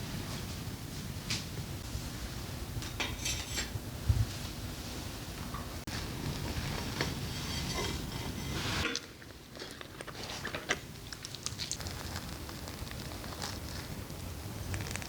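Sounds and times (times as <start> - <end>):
steady background noise: 0.0 - 15.0
food crunching: 8.8 - 15.0
person chewing and biting: 9.5 - 15.0.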